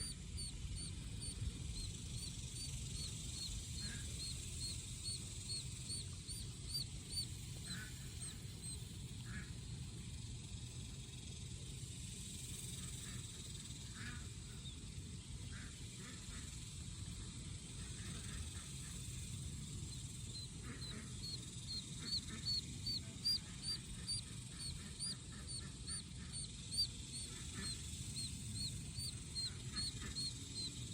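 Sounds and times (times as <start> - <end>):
duckling peeping: 0.0 - 9.5, 20.0 - 30.9.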